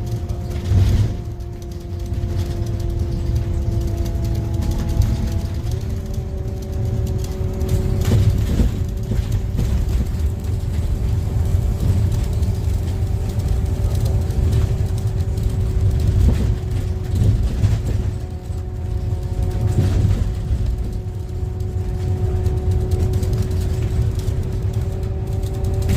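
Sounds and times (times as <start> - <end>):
bus engine and road rumble: 0.0 - 25.9
steady whine: 0.0 - 25.9.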